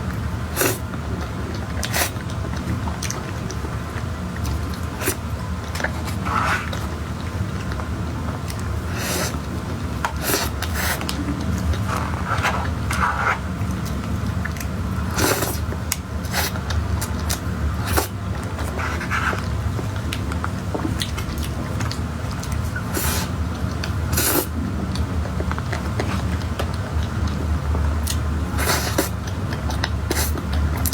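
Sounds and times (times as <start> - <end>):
close-miked chewing: 0.0 - 30.9
steady low hum: 0.0 - 30.9
utensil scrapes: 5.9 - 6.9, 11.7 - 13.5.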